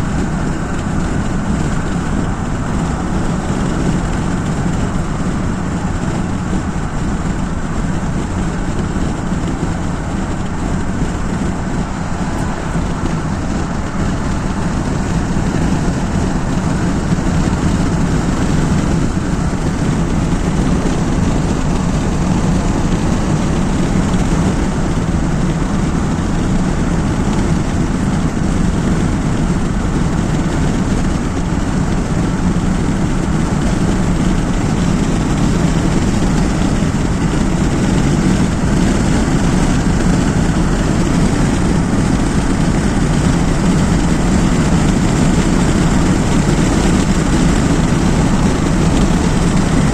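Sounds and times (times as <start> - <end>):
car driving on road: 0.0 - 49.9.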